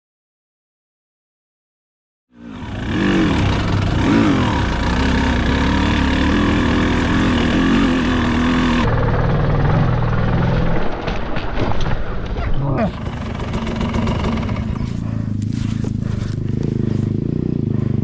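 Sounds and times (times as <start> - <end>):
dirt bike engine revving: 2.4 - 10.9, 12.8 - 18.0.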